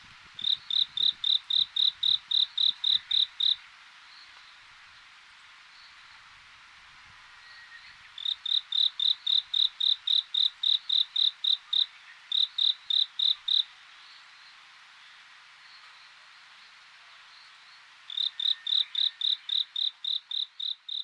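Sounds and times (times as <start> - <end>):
faint chorus of insects: 0.2 - 21.0
cricket chirping: 0.4 - 3.6, 8.2 - 13.7, 18.1 - 21.0.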